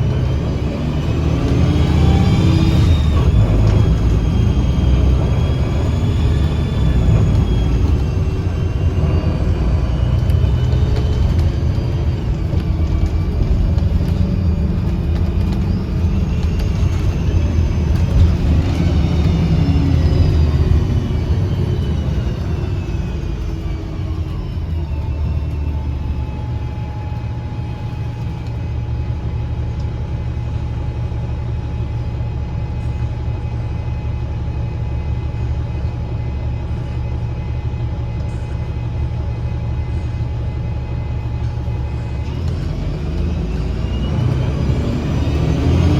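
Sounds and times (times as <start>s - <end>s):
bus diesel engine drone: 0.0s - 45.9s
high whine: 0.0s - 45.9s
whistling tones sliding in pitch: 0.2s - 27.5s.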